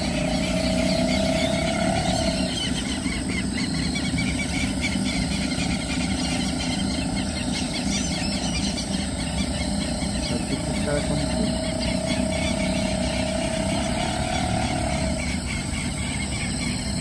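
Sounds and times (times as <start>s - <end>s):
faint engine hum: 0.0s - 17.0s
low outdoor background noise: 0.0s - 17.0s.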